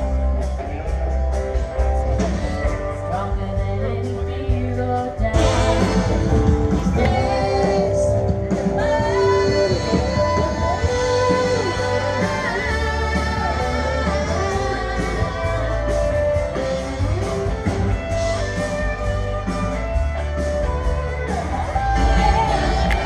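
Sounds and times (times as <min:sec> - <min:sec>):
bass line: 0:00.0 - 0:23.0
instrumental band music: 0:00.0 - 0:23.0
lead guitar: 0:00.0 - 0:23.0.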